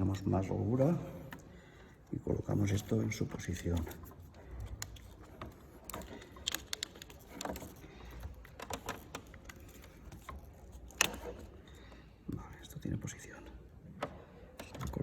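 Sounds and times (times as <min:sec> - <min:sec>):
small plastic parts clicking: 0:02.8 - 0:11.8.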